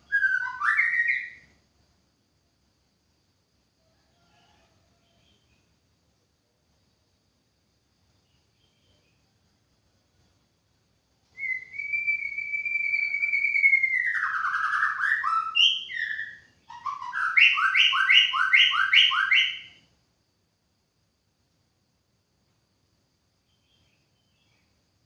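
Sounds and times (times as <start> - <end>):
songbird whistling song: 0.0 - 1.6, 11.3 - 19.9.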